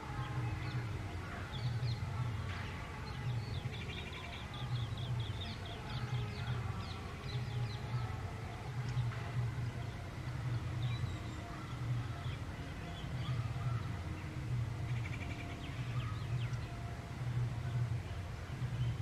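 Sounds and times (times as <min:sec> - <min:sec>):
pulsing low hum: 0:00.0 - 0:03.9
garden birds chirping: 0:00.0 - 0:19.0.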